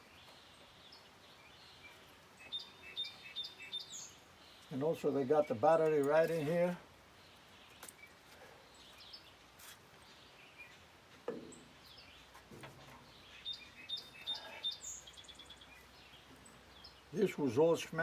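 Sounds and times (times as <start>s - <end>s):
faint birdsong: 0.0s - 18.0s.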